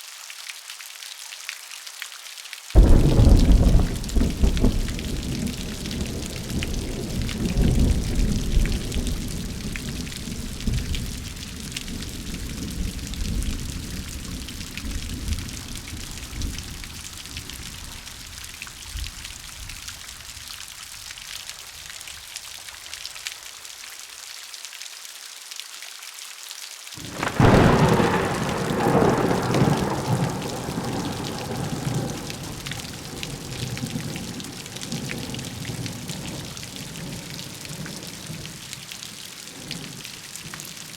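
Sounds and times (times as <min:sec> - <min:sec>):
steady rain: 0:00.0 - 0:40.9
loud thunderclap: 0:02.8 - 0:16.9, 0:27.0 - 0:37.1
thunder rumbling: 0:02.8 - 0:18.3, 0:27.0 - 0:38.5.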